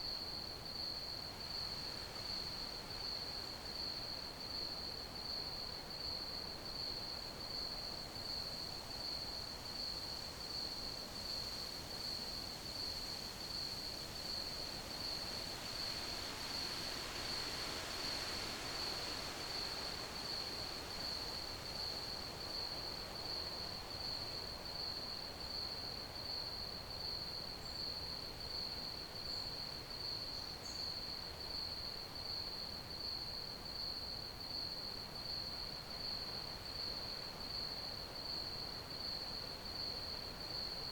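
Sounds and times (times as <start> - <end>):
crickets chirping: 12.8 - 40.9.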